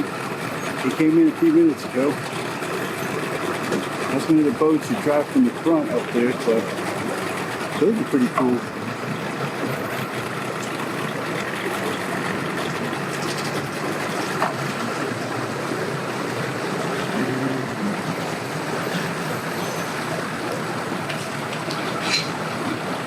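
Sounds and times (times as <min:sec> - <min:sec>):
boat motors running: 0:00.0 - 0:23.0
rushing background noise: 0:05.1 - 0:23.0.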